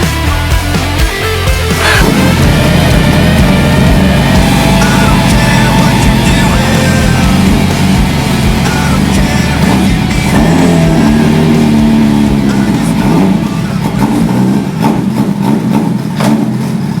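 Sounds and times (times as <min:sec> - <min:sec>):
rock music: 0:00.0 - 0:16.2
motorcycle engine revving: 0:00.0 - 0:17.0.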